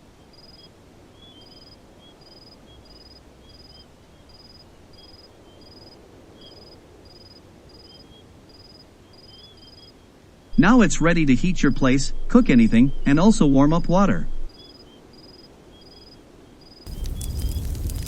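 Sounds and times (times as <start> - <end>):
insects trilling: 0.3 - 18.0
small high insect chirps: 14.3 - 18.0
low background rumble: 16.9 - 18.0.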